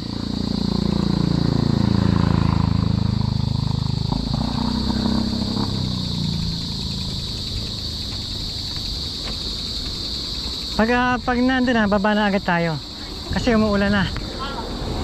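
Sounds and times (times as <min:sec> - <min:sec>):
vehicle engine passing by: 0:00.0 - 0:09.1, 0:13.1 - 0:15.0
crickets buzzing: 0:00.0 - 0:15.0.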